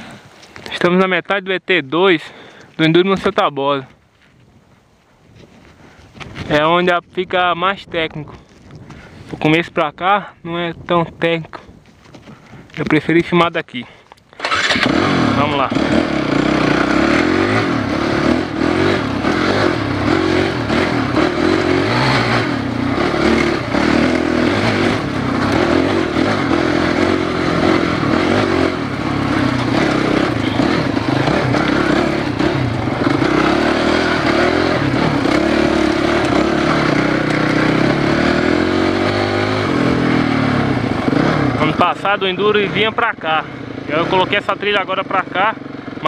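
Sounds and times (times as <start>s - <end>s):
dirt bike engine revving: 14.4s - 46.0s.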